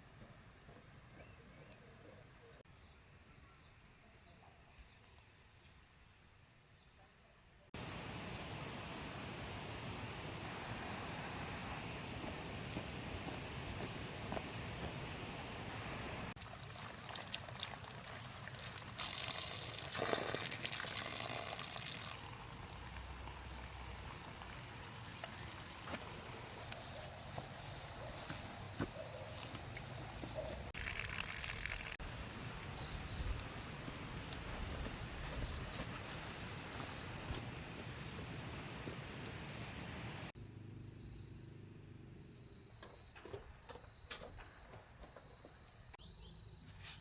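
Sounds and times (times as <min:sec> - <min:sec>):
lower pulsing insect chirp: 0:00.0 - 0:46.8
insects trilling: 0:05.3 - 0:38.7, 0:39.6 - 0:46.6
background hiss: 0:07.8 - 0:40.3
water pouring: 0:16.4 - 0:26.7, 0:30.8 - 0:32.0.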